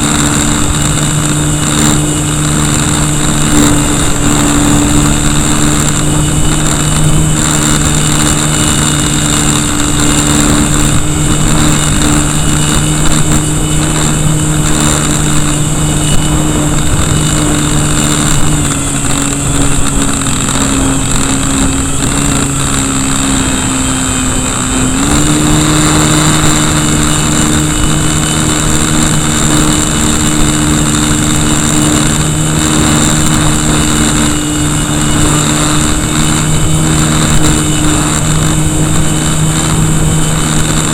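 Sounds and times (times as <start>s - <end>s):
electric motor and propeller: 0.0s - 40.9s
wind rush on microphone: 0.0s - 40.9s.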